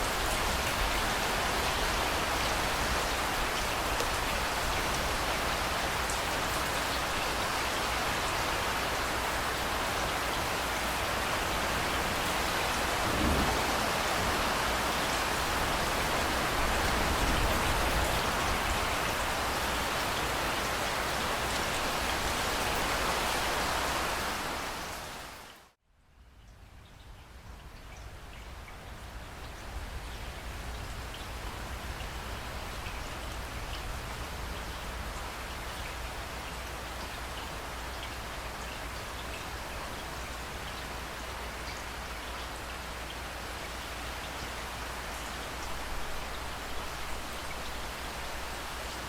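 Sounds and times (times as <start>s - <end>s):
heavy rain pattering: 0.0s - 25.0s.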